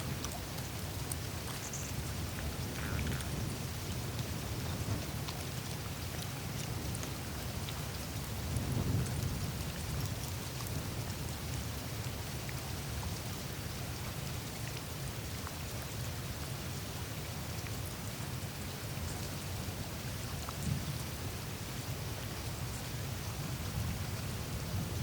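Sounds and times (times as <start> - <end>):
meltwater trickling through ice: 0.0 - 11.8
tiny ice crackles and drips: 0.0 - 21.2.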